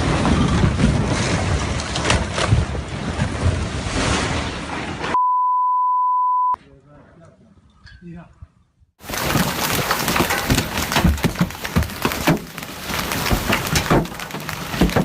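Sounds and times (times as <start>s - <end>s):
rockfall rushing and rumbling: 0.0s - 5.0s, 9.0s - 15.0s
censor bleep: 5.2s - 6.6s.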